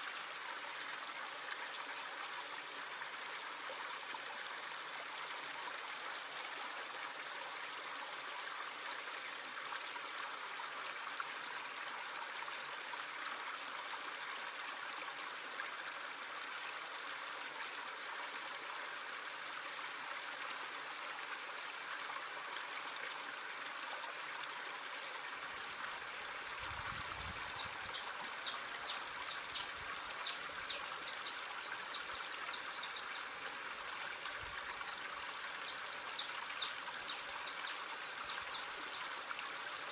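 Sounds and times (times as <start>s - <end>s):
stream running: 0.0s - 39.9s
bird chirping: 26.3s - 33.2s, 33.8s - 39.2s.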